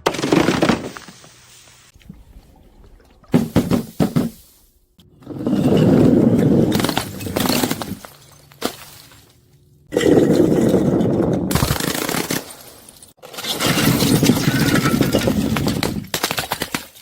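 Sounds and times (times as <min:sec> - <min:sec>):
crunching grinding glass: 0:05.2 - 0:17.0
glass bottles cracking: 0:05.6 - 0:09.4, 0:10.0 - 0:17.0.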